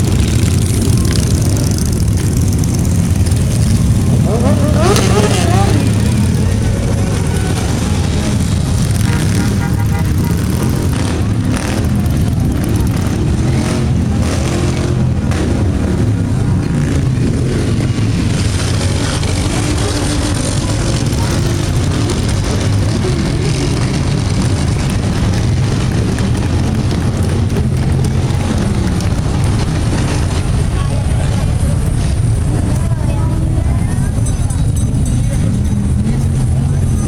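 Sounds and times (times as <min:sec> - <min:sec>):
car engines running: 0:00.0 - 0:37.0.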